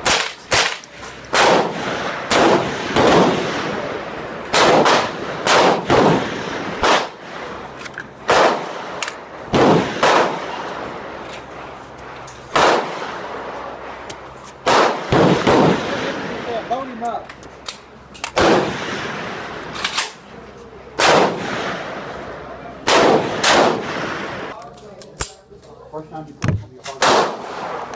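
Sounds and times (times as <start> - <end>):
gunshots: 0.0 - 10.9, 12.5 - 13.5, 14.6 - 16.7, 18.3 - 20.2, 21.0 - 22.0, 22.8 - 24.5, 26.8 - 27.9.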